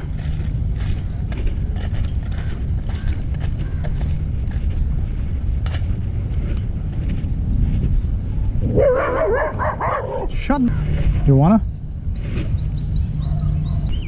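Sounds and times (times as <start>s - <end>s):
footsteps: 0.0s - 8.8s, 10.7s - 11.6s
steady low rumble: 0.0s - 14.0s.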